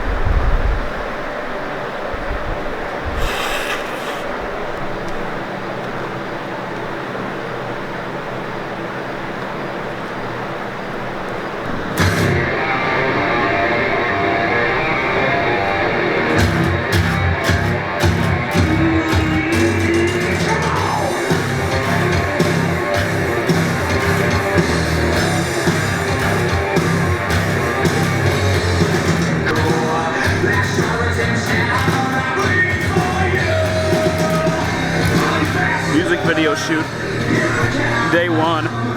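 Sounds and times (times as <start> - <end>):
rock music with electric guitar: 11.6 - 38.9
sharp drum hits: 12.0 - 12.6.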